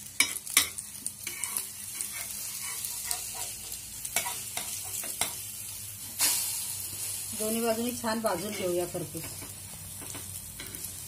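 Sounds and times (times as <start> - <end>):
bread sizzling in oil: 0.0 - 11.0
metal spatula scraping: 0.2 - 5.4.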